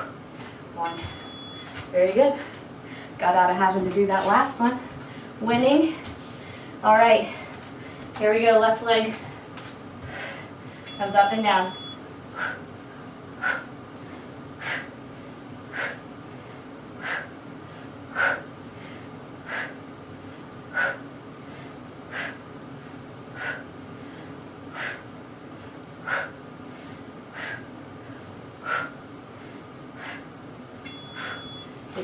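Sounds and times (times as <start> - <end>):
person breathing sharply: 31.0 - 31.7.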